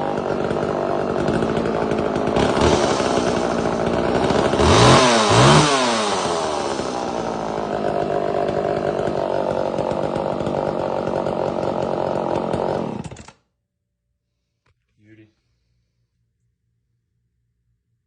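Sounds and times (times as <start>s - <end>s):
two-stroke chainsaw running: 0.0s - 13.4s.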